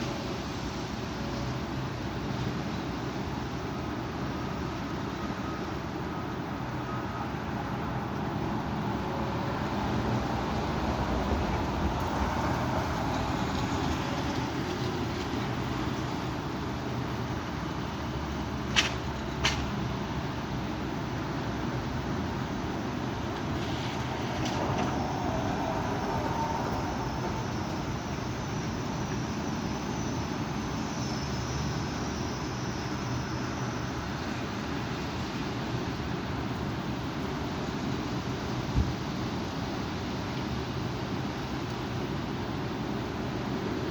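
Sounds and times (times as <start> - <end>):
strong wind gusting: 23.1 - 29.8.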